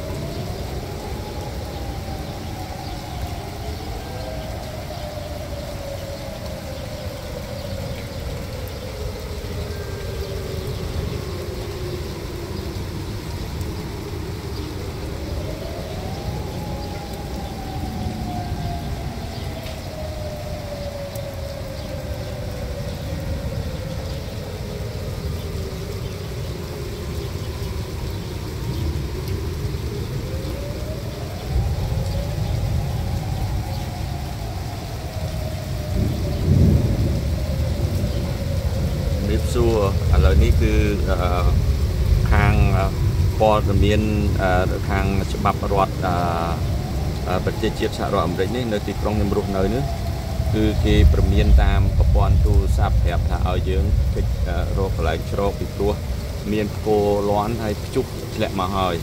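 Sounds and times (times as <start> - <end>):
warning siren wailing: 0.0 - 59.0
low rumble: 50.0 - 56.9.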